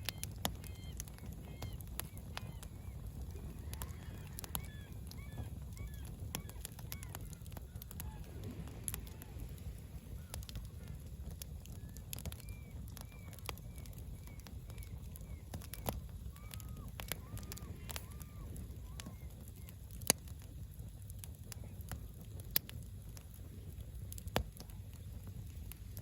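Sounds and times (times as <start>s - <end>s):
birds calling: 0.0s - 20.1s
wood fire crackling: 0.0s - 26.0s.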